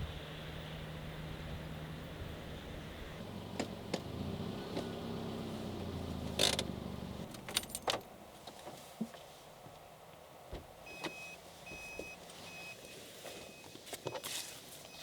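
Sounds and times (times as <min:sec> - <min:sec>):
car engine idling: 0:00.0 - 0:08.2
keys jingling: 0:07.4 - 0:08.1.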